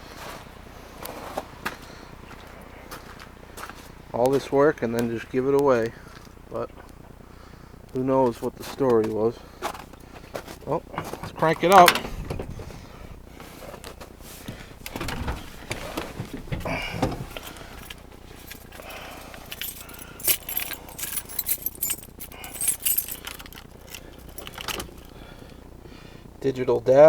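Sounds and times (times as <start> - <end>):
clicks and rustling handling: 7.9 - 25.6
keys jangling: 11.4 - 12.5, 14.8 - 25.5.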